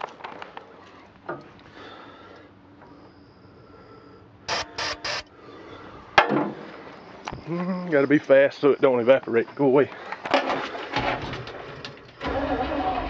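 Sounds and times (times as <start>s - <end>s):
aerosol can hissing: 4.5s - 5.2s.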